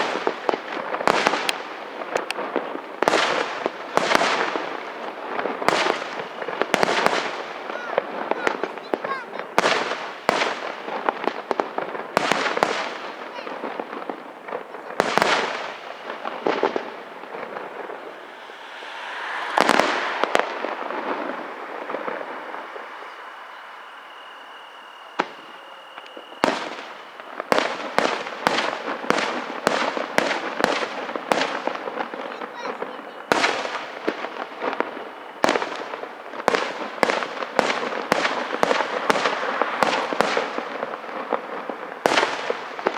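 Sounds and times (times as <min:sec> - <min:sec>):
firework rush: 0:00.0 - 0:42.9
high firework whistle: 0:00.0 - 0:42.9
rapid string of firework bangs: 0:00.0 - 0:42.9
firework shell bursts crackling: 0:12.1 - 0:42.9.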